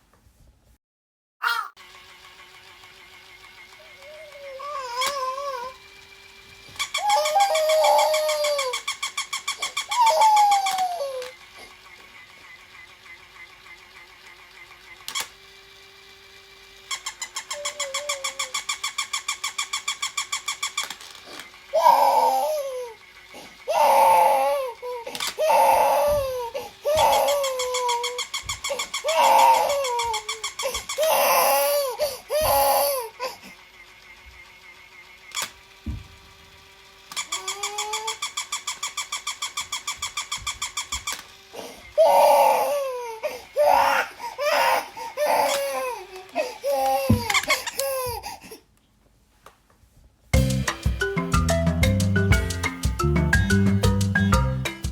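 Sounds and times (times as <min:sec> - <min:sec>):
baby crying: 0:01.4 - 0:01.8, 0:03.8 - 0:05.8, 0:07.0 - 0:08.8, 0:09.9 - 0:11.3, 0:17.5 - 0:18.6, 0:21.7 - 0:23.0, 0:23.7 - 0:33.5, 0:37.3 - 0:38.2, 0:41.6 - 0:48.6
toy dog barking: 0:01.4 - 0:01.8, 0:03.7 - 0:05.8, 0:06.8 - 0:11.4, 0:16.9 - 0:23.0, 0:23.6 - 0:33.1, 0:37.1 - 0:48.2.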